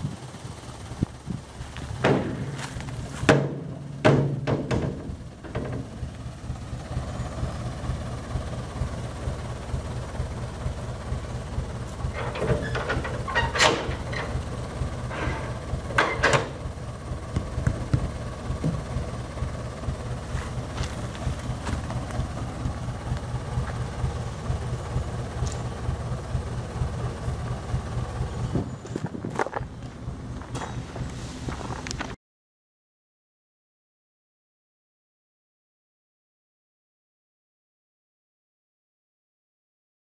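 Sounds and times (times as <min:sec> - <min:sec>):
truck engine running: 0:00.0 - 0:32.2
cargo knocks and clanks: 0:01.7 - 0:06.1, 0:11.2 - 0:16.7, 0:19.9 - 0:22.3.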